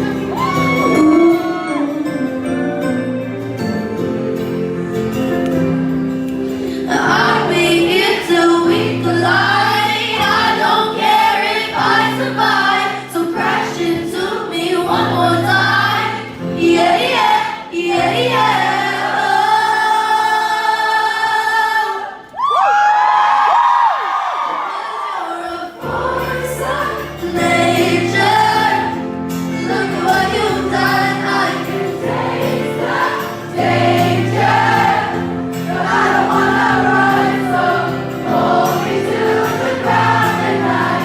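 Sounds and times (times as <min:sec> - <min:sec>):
live pop band playing: 0:00.0 - 0:21.0, 0:25.9 - 0:41.0
woman singing: 0:06.8 - 0:22.2, 0:25.1 - 0:32.0.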